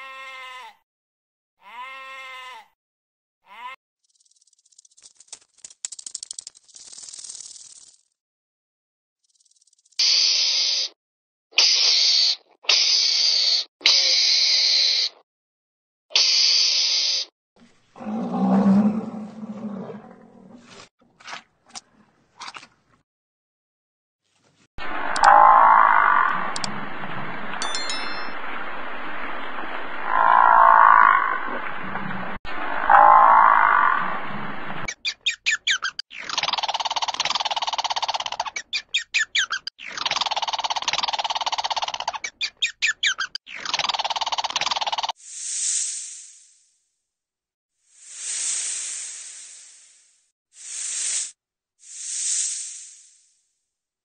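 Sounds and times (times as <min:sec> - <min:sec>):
animal hissing: 0:10.0 - 0:11.0, 0:11.6 - 0:15.2, 0:50.6 - 0:53.2.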